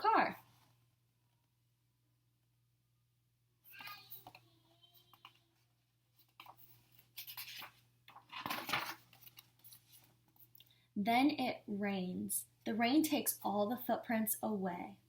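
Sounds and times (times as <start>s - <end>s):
paper page rustling: 3.8s - 10.5s.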